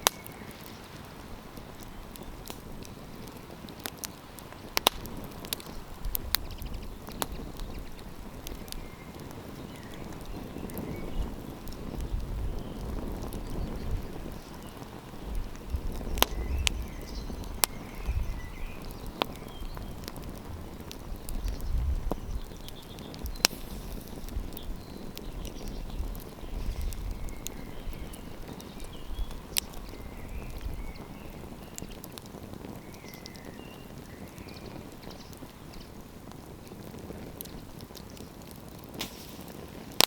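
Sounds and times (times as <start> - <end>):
campfire crackling: 0.0 - 40.0
sharp wood pops: 2.5 - 7.7, 18.8 - 29.9, 38.7 - 40.0.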